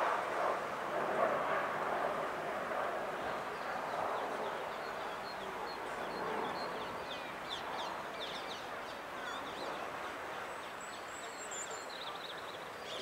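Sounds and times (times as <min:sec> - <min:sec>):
small birds chirping: 0:03.5 - 0:13.0.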